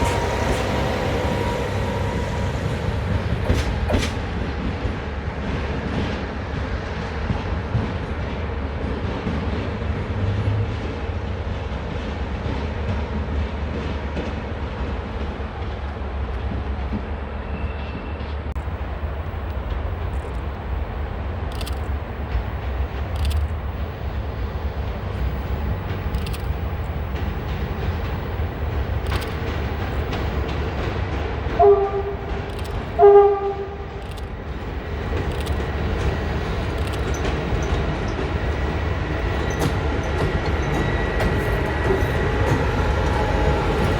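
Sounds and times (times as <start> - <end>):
train rumbling: 0.0 - 43.9
sharp clicks: 18.6 - 31.5, 32.2 - 33.2, 33.9 - 37.8
locomotive horn blasts: 31.5 - 34.0.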